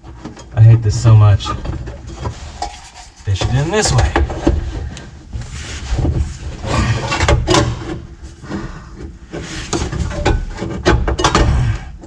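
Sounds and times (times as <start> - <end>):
plastic scraping and rubbing: 1.5 - 11.3
sharp knocks and clicks: 9.0 - 11.8.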